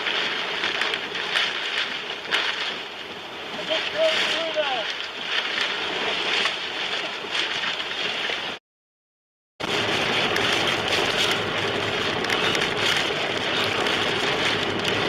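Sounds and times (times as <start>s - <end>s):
heavy rain: 0.0s - 5.4s, 9.6s - 15.0s
storm wind: 9.6s - 15.0s.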